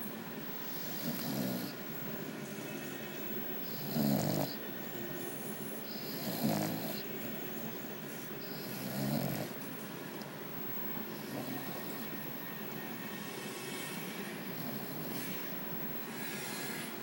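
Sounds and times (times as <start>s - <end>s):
dog snoring: 0.5s - 2.0s, 3.6s - 4.6s, 5.8s - 7.6s, 8.4s - 9.6s, 10.7s - 12.4s, 14.3s - 17.0s.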